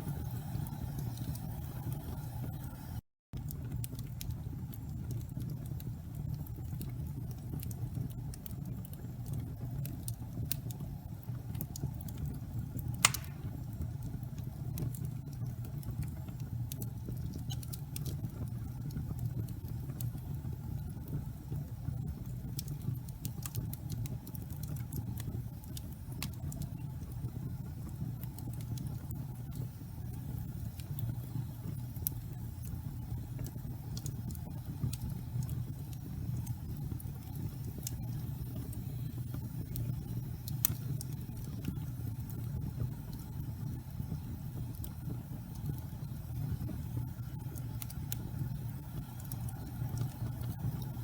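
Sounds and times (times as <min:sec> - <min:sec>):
burning logs crackling: 0:00.0 - 0:51.0
fire flames rumbling: 0:00.0 - 0:51.0
loud fire pop: 0:13.0 - 0:13.6.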